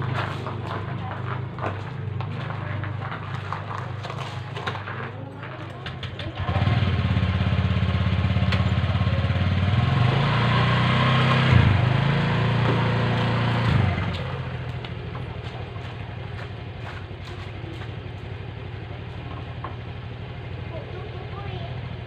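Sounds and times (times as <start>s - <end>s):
engine running loud: 6.3s - 22.0s.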